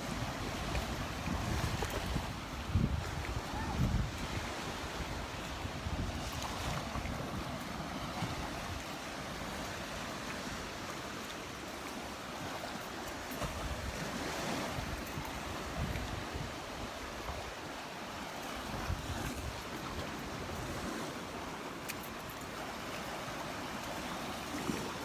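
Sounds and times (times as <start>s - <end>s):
wind buffeting microphone: 0.0s - 9.7s, 13.4s - 17.6s, 18.6s - 21.0s
waves breaking on beach: 0.0s - 25.0s.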